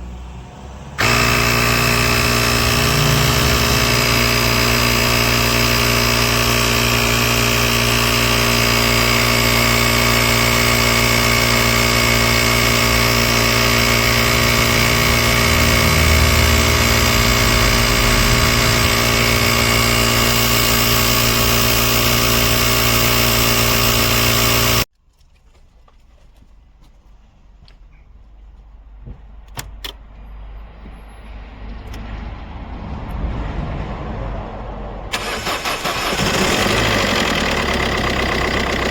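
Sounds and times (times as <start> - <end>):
diesel engine idling: 0.6 - 24.9, 35.1 - 38.9.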